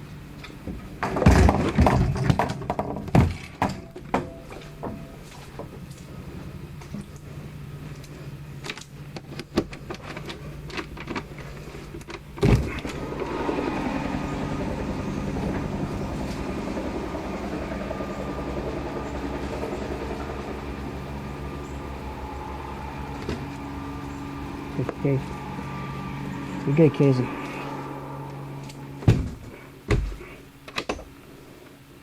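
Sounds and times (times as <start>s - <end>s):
engine running: 0.0s - 32.0s
loud thump: 29.0s - 30.1s.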